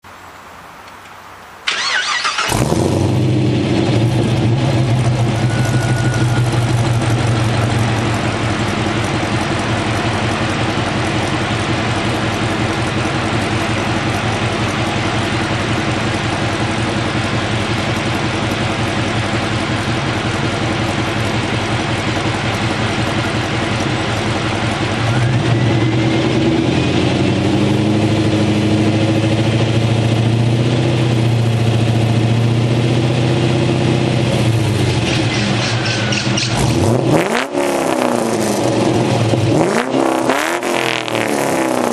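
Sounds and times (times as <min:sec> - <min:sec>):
car engine cranking on starter: 0:01.6 - 0:25.8
loud engine idling: 0:01.7 - 0:41.9.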